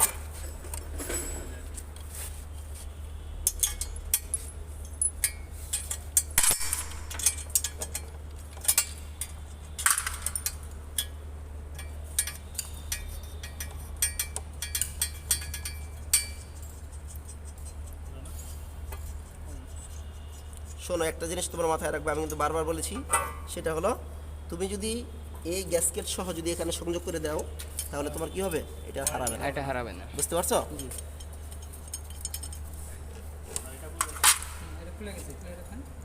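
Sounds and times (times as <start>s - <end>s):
metal tools clinking: 0.0s - 1.8s, 3.4s - 20.0s, 27.2s - 34.6s.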